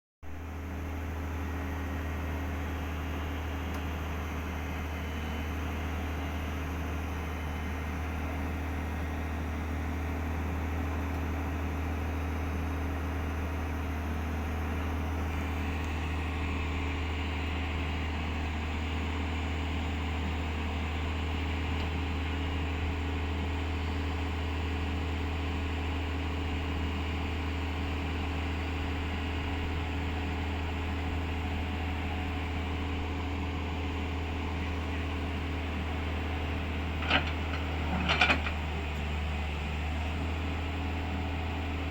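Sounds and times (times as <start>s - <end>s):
diesel engine running steadily: 0.2s - 41.9s.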